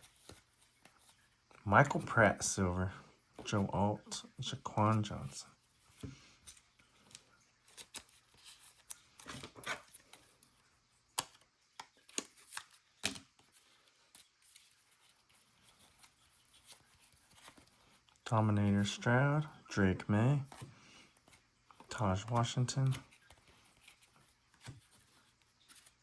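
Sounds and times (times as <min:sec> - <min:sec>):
trading cards being flipped: 0:04.7 - 0:18.9, 0:20.4 - 0:26.0.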